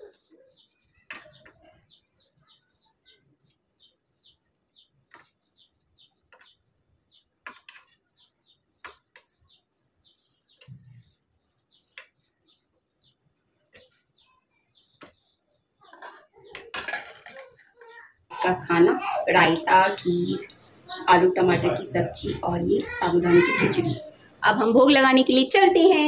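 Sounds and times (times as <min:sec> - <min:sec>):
small bird chirping: 0:00.0 - 0:16.6
dishes clattering: 0:15.8 - 0:17.9.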